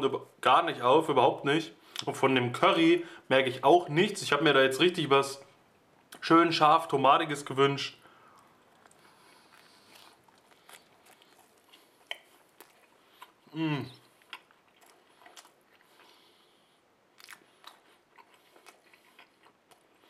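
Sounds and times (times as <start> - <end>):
person chewing food: 8.1 - 20.0.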